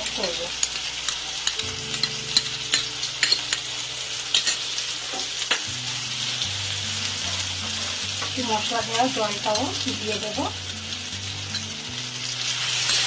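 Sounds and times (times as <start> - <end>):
fish sizzling in hot oil: 0.0 - 13.0
spoon scraping a pan: 7.1 - 8.4.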